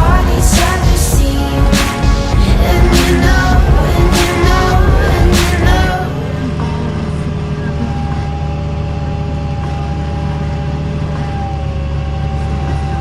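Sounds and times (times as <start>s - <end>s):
thin steady whine: 0.0s - 13.0s
tractor diesel engine running: 0.0s - 13.0s.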